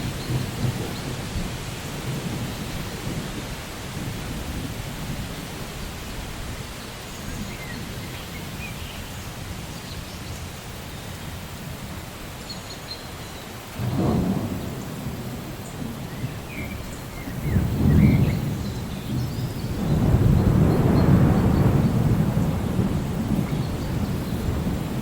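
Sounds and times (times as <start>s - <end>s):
thunder rumbling: 0.0s - 6.0s, 13.8s - 25.0s
steady rainfall: 0.0s - 25.0s.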